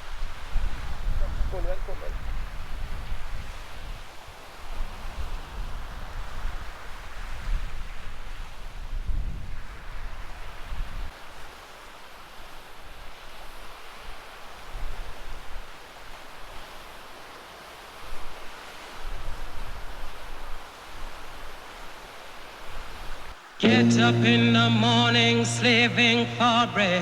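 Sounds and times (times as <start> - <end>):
sea surf: 23.6 - 27.0.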